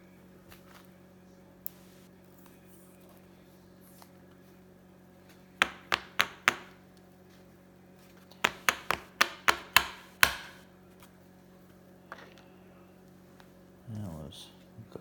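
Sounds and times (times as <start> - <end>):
sharp knocks on hard surface: 5.6 - 6.8, 8.4 - 10.6.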